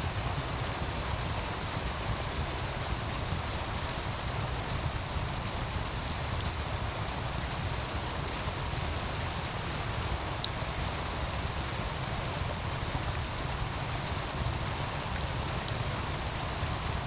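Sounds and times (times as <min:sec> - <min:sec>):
wood fire crackling and popping: 0:02.1 - 0:07.4, 0:08.0 - 0:11.6.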